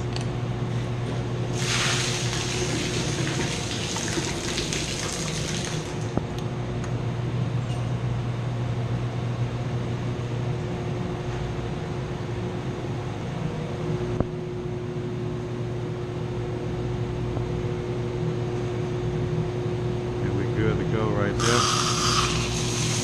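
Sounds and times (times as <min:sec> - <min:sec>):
pump machinery humming: 0:00.0 - 0:06.6, 0:20.3 - 0:23.0.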